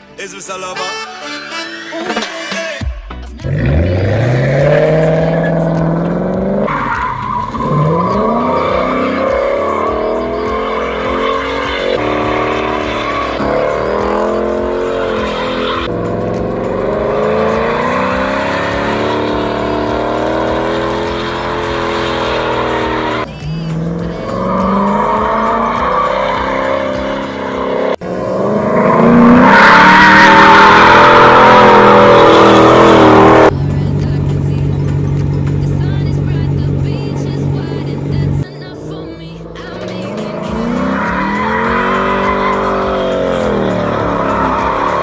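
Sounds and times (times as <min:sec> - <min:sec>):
music: 0:00.0 - 0:45.0
car engine revving: 0:03.3 - 0:45.0
tyres squealing: 0:04.2 - 0:15.9, 0:17.2 - 0:27.9, 0:28.8 - 0:33.5, 0:39.6 - 0:45.0.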